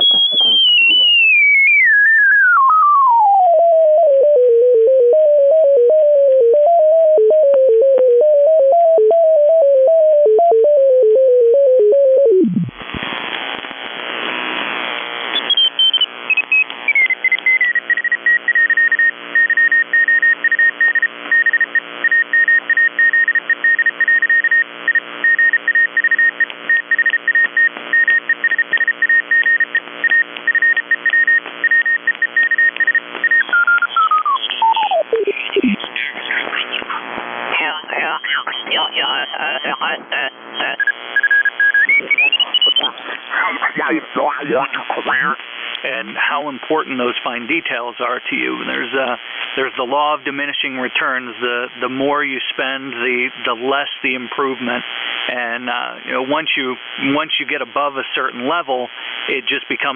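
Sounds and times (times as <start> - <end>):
pulsing whistle: 0.0 - 3.0
radio whistling tone: 0.0 - 12.8, 37.6 - 45.4
radio hiss: 33.9 - 59.9.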